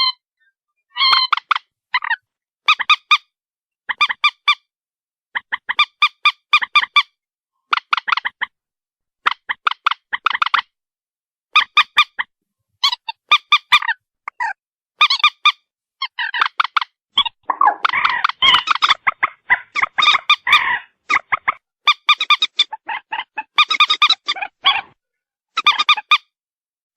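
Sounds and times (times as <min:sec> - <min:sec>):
moorhen calling: 0:17.2 - 0:25.0.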